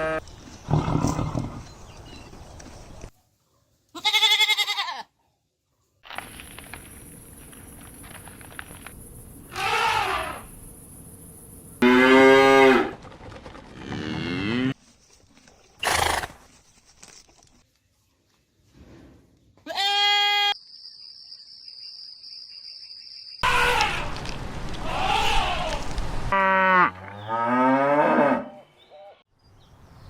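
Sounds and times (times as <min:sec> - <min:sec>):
farm animal calls: 0:23.4 - 0:29.2.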